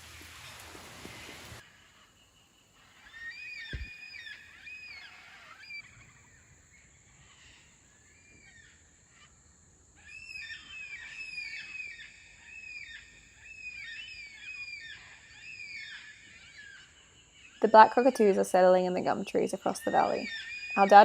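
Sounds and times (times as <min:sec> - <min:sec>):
cockatoos calling: 0:19.8 - 0:21.0.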